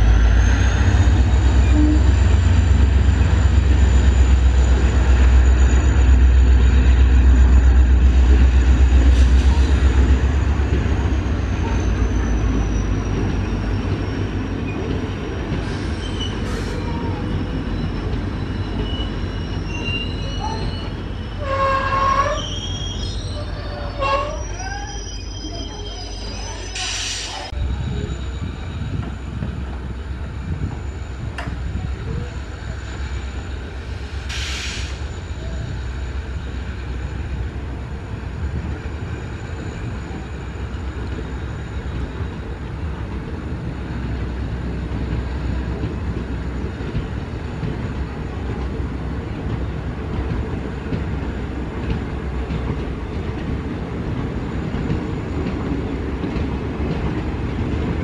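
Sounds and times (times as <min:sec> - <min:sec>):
train wheels rumbling and clattering: 0:00.0 - 0:58.0
brief high hiss: 0:26.8 - 0:27.5, 0:34.2 - 0:35.1.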